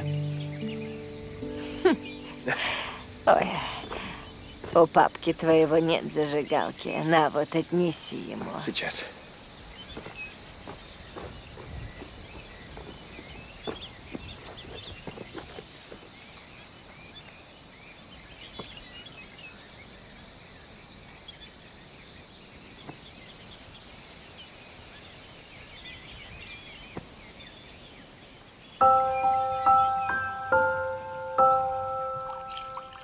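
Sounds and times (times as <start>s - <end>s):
bird chirps: 0.0s - 6.7s, 28.8s - 33.0s
insects droning: 0.0s - 33.0s.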